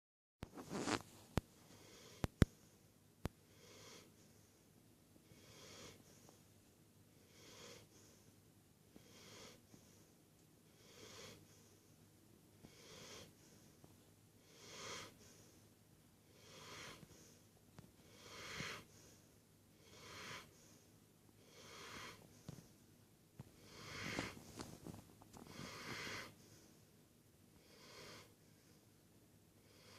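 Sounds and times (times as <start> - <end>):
dog snoring: 0.6 - 1.0, 1.7 - 2.7, 3.5 - 4.6, 5.2 - 6.4, 7.1 - 8.3, 8.9 - 11.9, 12.6 - 13.8, 14.4 - 15.6, 16.2 - 17.4, 18.0 - 22.7, 23.6 - 24.6, 25.4 - 26.7, 27.6 - 28.8, 29.6 - 29.9.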